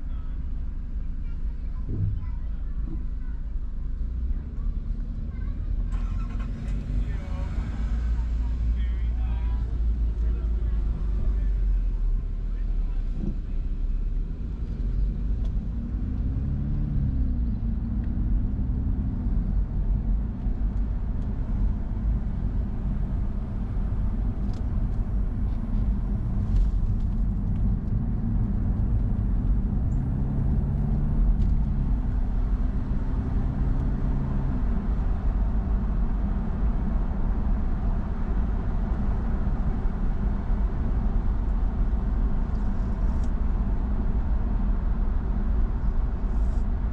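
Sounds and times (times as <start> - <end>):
car engine and road rumble: 0.0 - 46.9.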